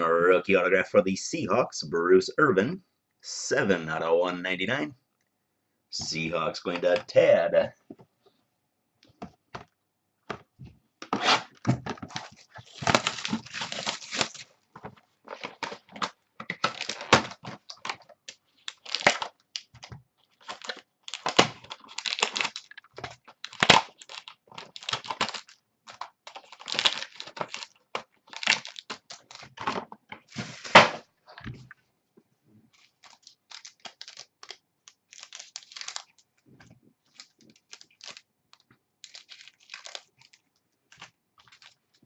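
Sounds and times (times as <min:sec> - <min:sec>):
plastic wrapping tearing and crinkling: 0:11.2 - 0:14.5, 0:15.2 - 0:29.6, 0:32.7 - 0:36.2, 0:37.0 - 0:42.0.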